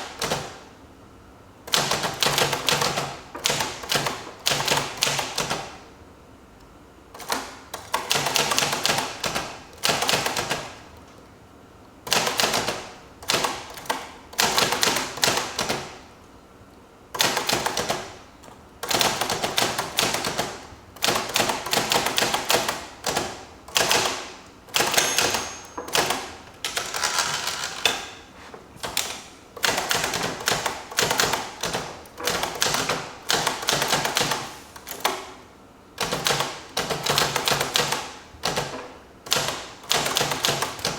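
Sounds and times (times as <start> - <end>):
typewriter key strikes: 18.9 - 28.2.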